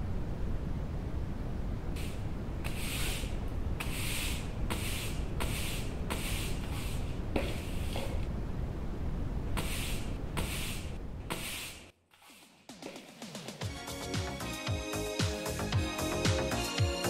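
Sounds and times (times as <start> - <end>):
steady low rumble: 0.0 - 11.3
broom sweeping a hard floor: 2.0 - 8.2, 9.6 - 13.8.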